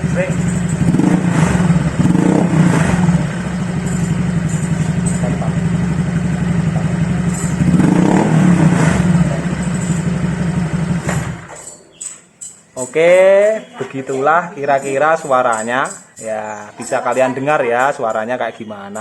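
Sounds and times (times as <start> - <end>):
engine throttle blips: 0.0 - 11.8
scooter engine idling: 0.0 - 12.1.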